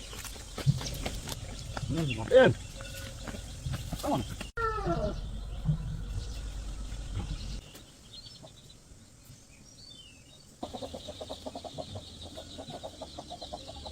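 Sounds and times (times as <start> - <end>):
small birds chirping: 0.0 - 13.9
chicken clucking: 10.6 - 13.9.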